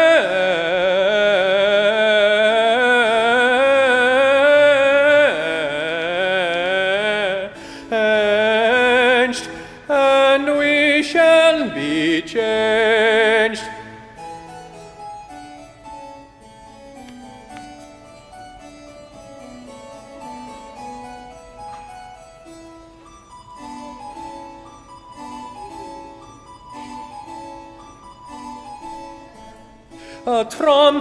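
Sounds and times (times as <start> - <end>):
bass voice singing with vibrato: 0.0 - 14.2, 30.2 - 31.0
harpsichord-like keyboard: 0.0 - 31.0
singer breathing: 7.5 - 8.0, 9.4 - 9.9, 29.8 - 30.3.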